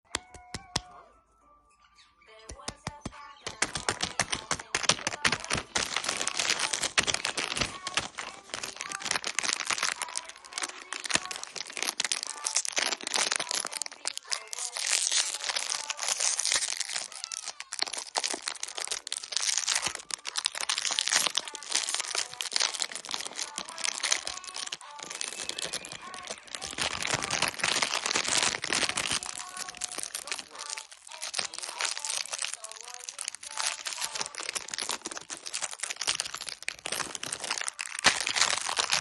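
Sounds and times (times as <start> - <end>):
plastic wrappers crinkling and tearing: 2.6 - 39.0.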